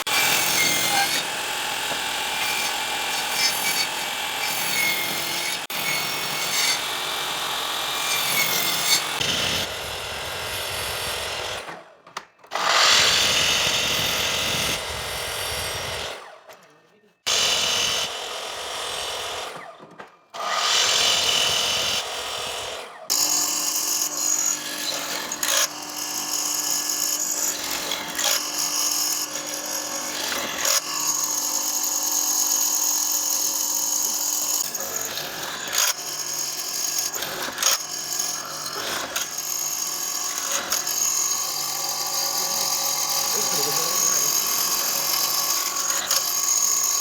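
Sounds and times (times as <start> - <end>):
power tool whining on wood: 0.0 - 16.6, 17.3 - 47.0.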